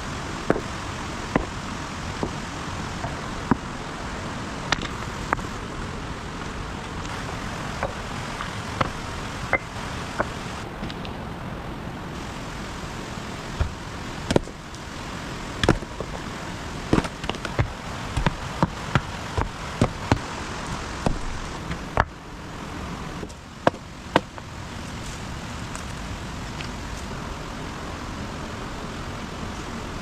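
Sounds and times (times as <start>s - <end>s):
background hiss: 0.0s - 30.0s
stones clacking together: 0.5s - 0.7s, 1.3s - 1.6s, 4.7s - 5.5s, 7.0s - 11.0s, 13.6s - 14.6s, 15.6s - 16.3s, 16.9s - 22.2s, 23.2s - 25.0s.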